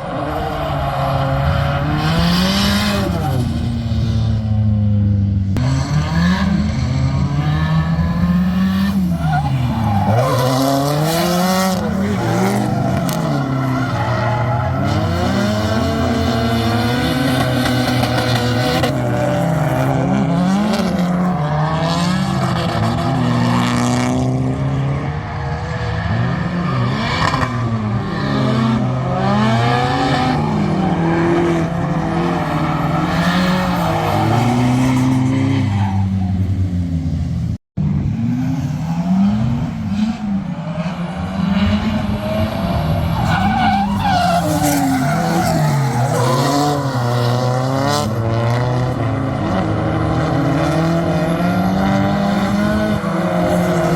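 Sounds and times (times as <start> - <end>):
car engine revving: 0.0 - 53.9
tyres squealing: 43.1 - 47.1.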